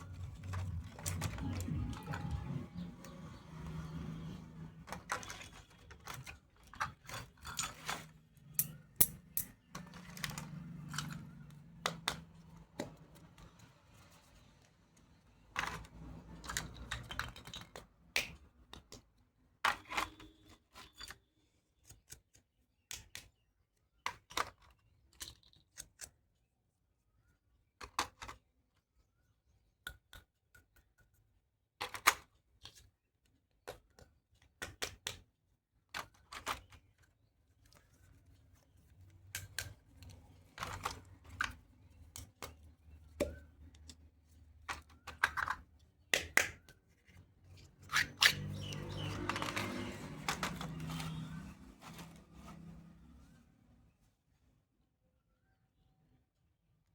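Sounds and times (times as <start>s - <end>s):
toy pieces clicking and tapping: 8.6s - 13.2s, 44.7s - 46.8s.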